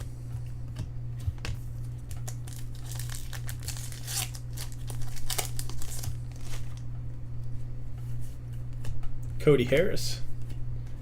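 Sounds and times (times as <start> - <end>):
low steady hum: 0.0 - 11.0
foil wrapper tearing and crinkling: 2.0 - 6.8.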